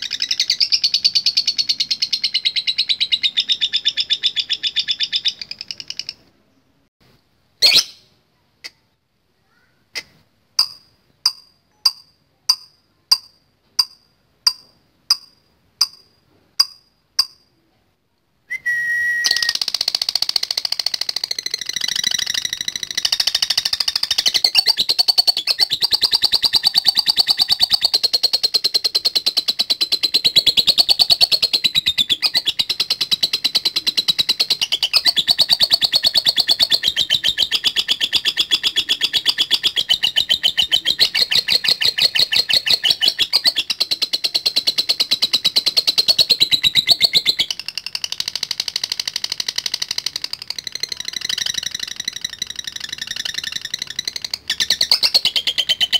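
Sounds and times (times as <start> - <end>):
lovebird chattering trill: 0.0 - 6.2, 10.0 - 17.4, 19.3 - 55.9
lovebird chirps: 0.0 - 6.7, 7.6 - 8.8, 10.0 - 17.6, 18.5 - 55.9.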